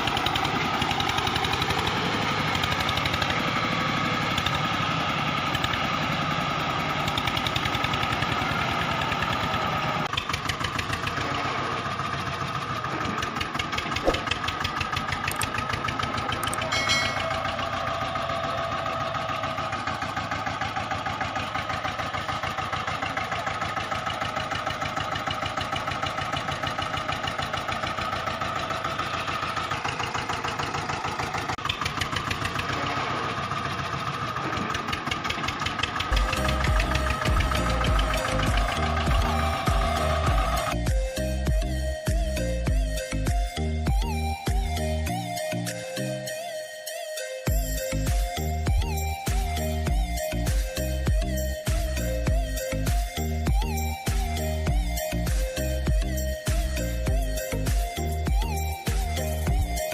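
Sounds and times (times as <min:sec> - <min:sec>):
engine chugging with whine: 0:00.0 - 0:59.9.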